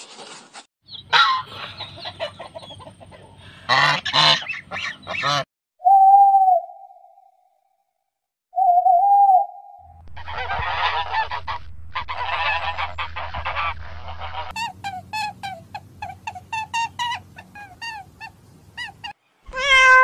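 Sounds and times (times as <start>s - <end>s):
goose honking: 1.1s - 2.5s, 3.4s - 5.4s, 10.2s - 18.3s.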